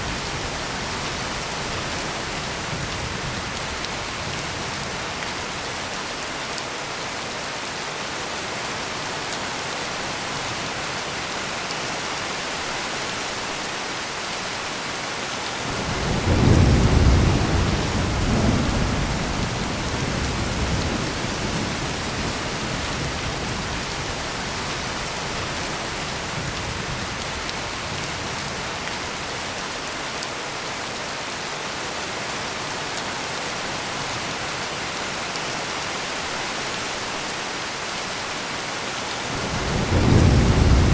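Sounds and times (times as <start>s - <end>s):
heavy rain: 0.0s - 40.9s
thunder rumbling: 15.7s - 22.4s, 39.3s - 40.9s.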